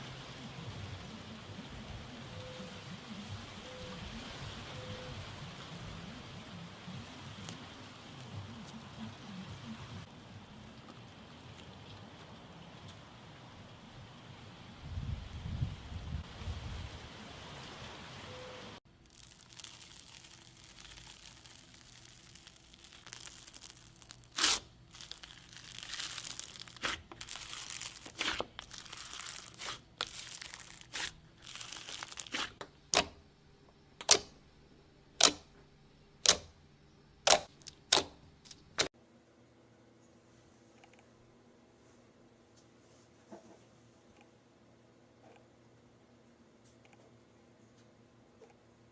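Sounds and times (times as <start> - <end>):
crinkling and tearing: 19.0 - 33.1.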